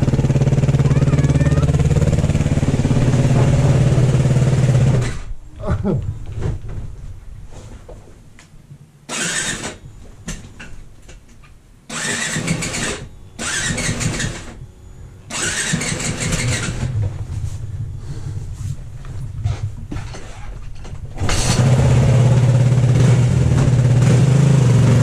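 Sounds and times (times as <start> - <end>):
snowbike engine bursts: 0.0 - 5.8, 9.1 - 9.9, 11.9 - 20.6, 21.2 - 25.0.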